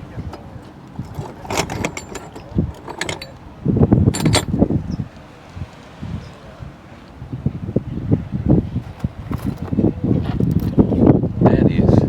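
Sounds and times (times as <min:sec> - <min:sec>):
small hard parts clinking: 0:00.2 - 0:04.7.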